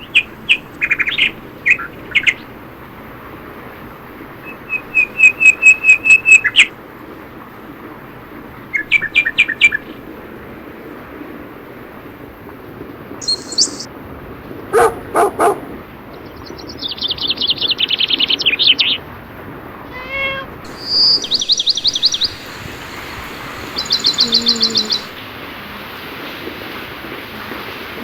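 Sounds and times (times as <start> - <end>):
birds singing trilled notes: 4.5 - 6.7, 13.2 - 13.9, 20.7 - 25.1
rain hissing: 13.2 - 13.9, 20.4 - 27.8
dog barks: 14.7 - 15.8.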